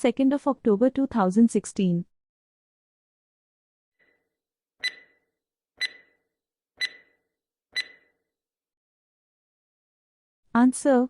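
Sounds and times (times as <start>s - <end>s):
countdown timer tick beeps: 4.8s - 5.2s, 5.8s - 6.2s, 6.8s - 7.2s, 7.8s - 8.1s.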